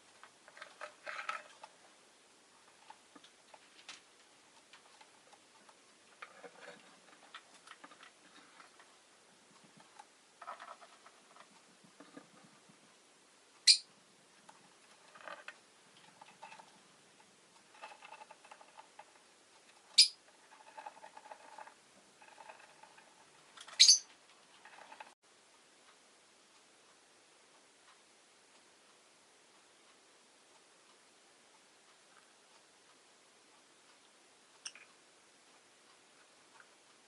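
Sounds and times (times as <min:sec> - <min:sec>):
lovebird chattering: 0:13.6 - 0:13.9, 0:19.9 - 0:20.2, 0:23.7 - 0:24.1
high-pitched bird call: 0:23.8 - 0:24.1.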